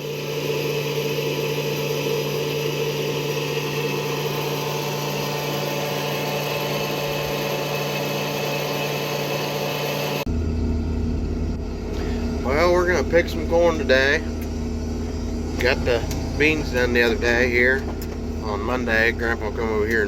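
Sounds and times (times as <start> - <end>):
farm machinery engine running: 0.0 - 20.0
machinery whine: 0.0 - 20.0
deep low rumble: 10.3 - 20.0.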